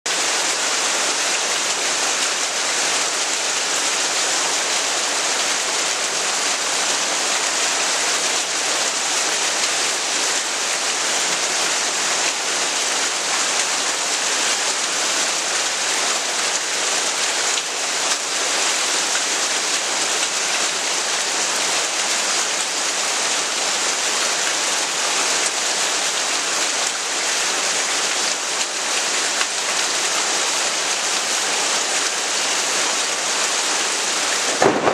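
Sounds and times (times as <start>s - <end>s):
heavy rain hissing: 0.1s - 34.9s.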